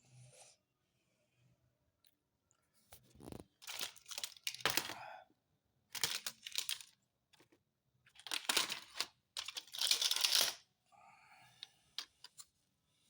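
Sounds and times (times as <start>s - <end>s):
rustling and crinkling handling: 2.9s - 4.9s, 5.9s - 10.6s.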